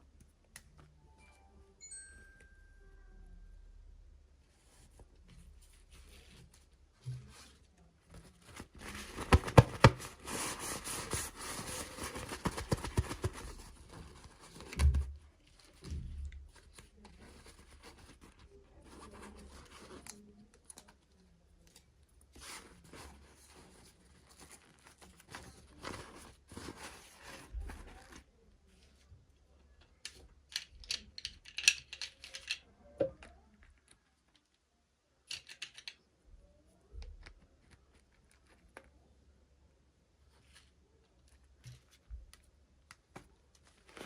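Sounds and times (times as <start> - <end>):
plastic wrapping rustling and tearing: 8.1 - 20.8, 22.4 - 28.2.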